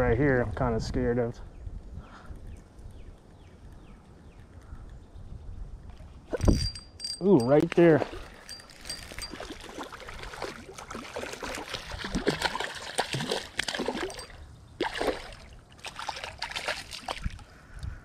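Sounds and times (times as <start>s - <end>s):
fish splashing at the surface: 9.2s - 17.4s.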